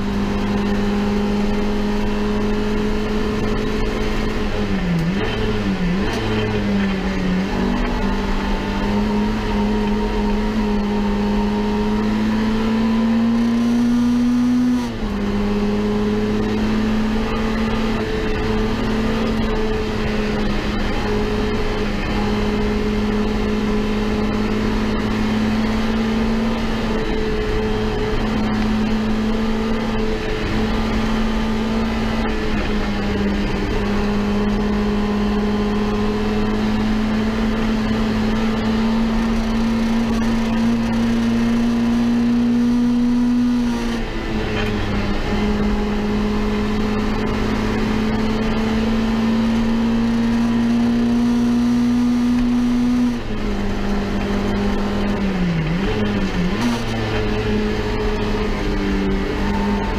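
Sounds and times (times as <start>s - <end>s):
car engine revving high: 0.0s - 59.9s.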